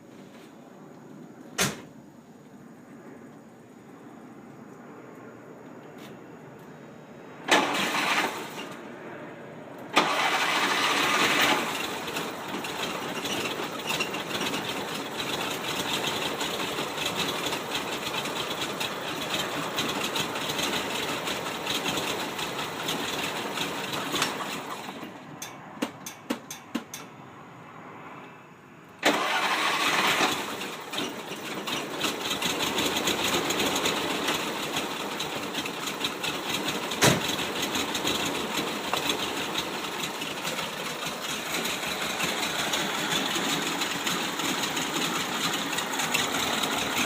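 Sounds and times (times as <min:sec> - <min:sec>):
car engine starting and sputtering: 0:07.4 - 0:08.9, 0:09.7 - 0:26.1, 0:29.0 - 0:47.0.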